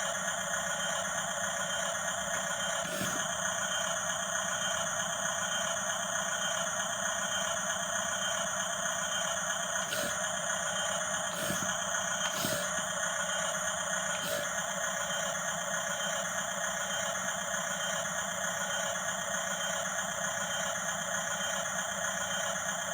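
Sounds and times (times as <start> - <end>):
small electric motors whining: 2.9 - 3.3, 9.8 - 14.6.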